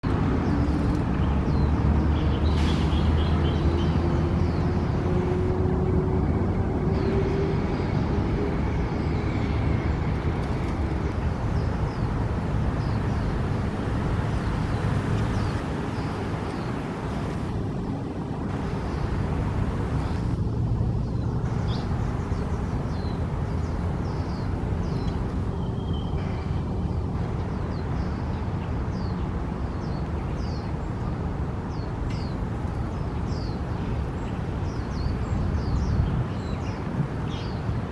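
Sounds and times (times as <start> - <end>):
low rumble of distant traffic: 0.0 - 37.9.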